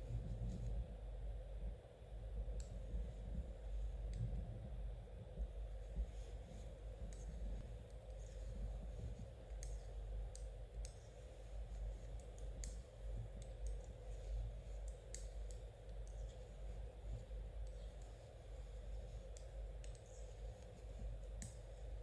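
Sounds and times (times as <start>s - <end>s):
steady low hum: 0.0s - 22.0s
knitting needles clicking: 9.4s - 11.2s, 11.8s - 18.2s, 19.2s - 21.7s.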